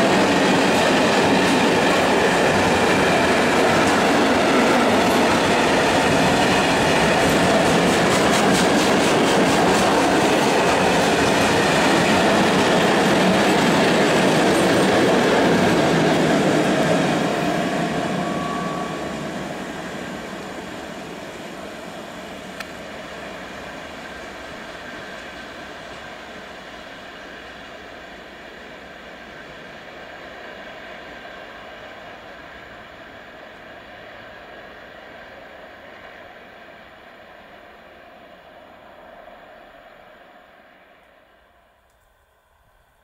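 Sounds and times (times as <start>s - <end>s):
freight train wheels clattering: 0.0s - 18.2s.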